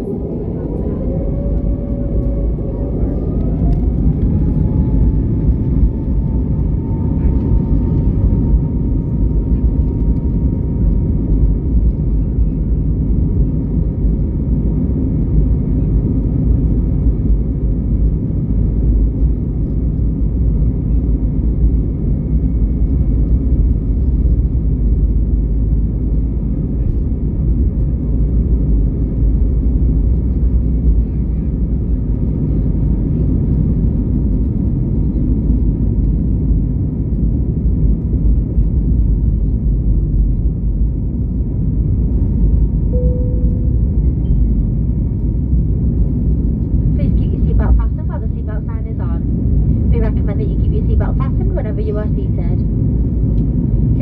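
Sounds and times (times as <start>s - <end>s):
engine and airflow rumble: 0.0s - 54.0s
faint steady whine: 41.9s - 54.0s.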